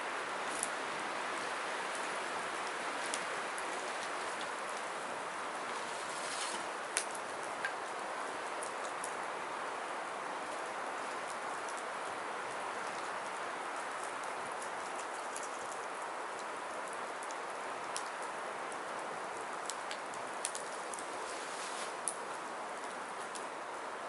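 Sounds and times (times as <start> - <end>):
firewood burning and crackling: 0.0 - 24.0
sharp pops of burning wood: 5.7 - 7.8.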